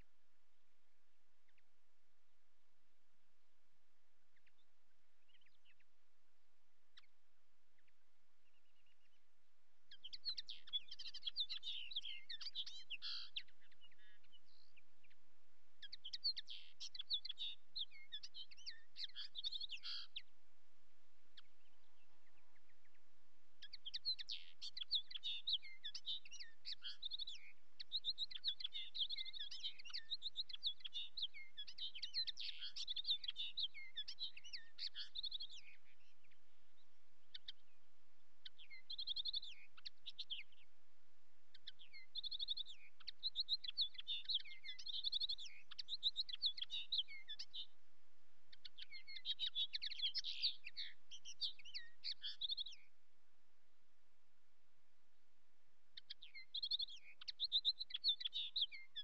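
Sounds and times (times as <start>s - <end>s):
songbird twittering: 6.9s - 20.4s, 21.3s - 40.8s, 41.5s - 47.8s, 48.5s - 53.0s, 55.9s - 59.0s.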